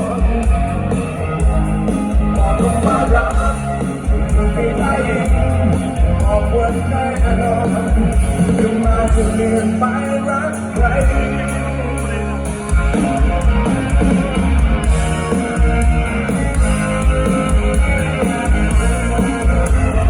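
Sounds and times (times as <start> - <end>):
person singing: 0.0 - 13.4
bass guitar: 0.0 - 20.0
electric guitar: 0.0 - 20.0.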